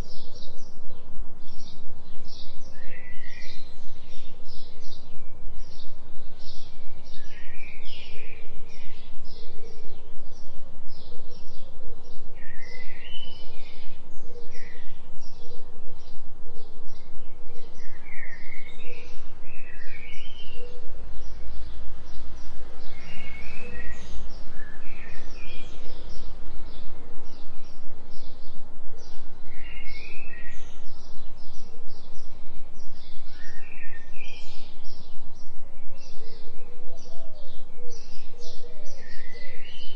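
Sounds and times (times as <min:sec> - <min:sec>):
birds singing: 0:00.0 - 0:39.9
pulsing low droning tone: 0:00.0 - 0:39.9.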